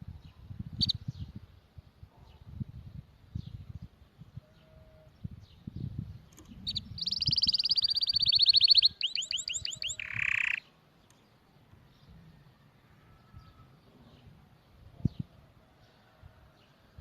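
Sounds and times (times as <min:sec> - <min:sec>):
canary singing: 0:06.5 - 0:10.7.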